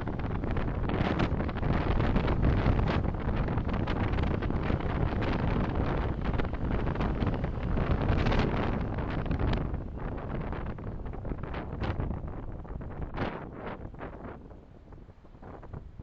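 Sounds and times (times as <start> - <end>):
car road noise: 0.0 - 16.0
wind rumbling on microphone: 0.0 - 16.0.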